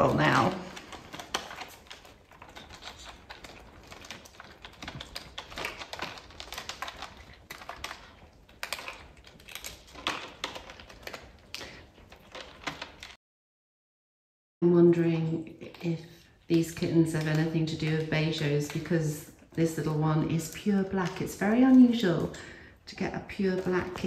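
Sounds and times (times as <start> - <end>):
cat crunching dry food: 0.0 - 13.1.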